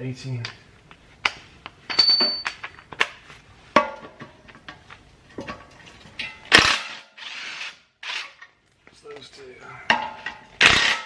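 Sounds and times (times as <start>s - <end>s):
metal tools clinking: 1.9s - 2.9s.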